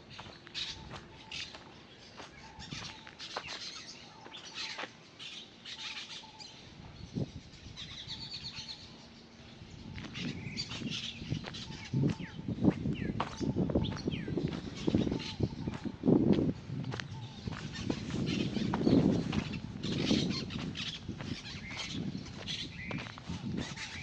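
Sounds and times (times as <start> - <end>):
small birds chirping: 0.0 - 24.0
bird trill: 7.5 - 16.0, 17.1 - 24.0.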